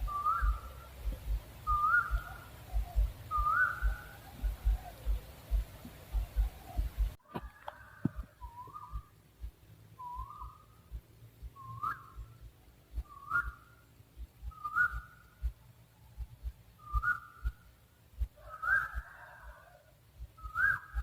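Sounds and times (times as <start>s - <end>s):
owl hooting: 0.0s - 7.2s, 18.4s - 19.8s
faint low thumps: 0.0s - 18.4s.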